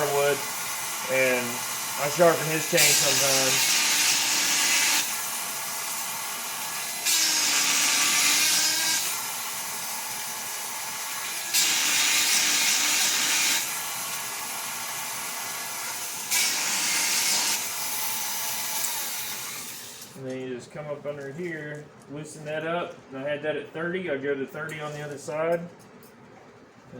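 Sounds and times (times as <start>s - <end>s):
sharpener motor running: 0.0s - 20.2s.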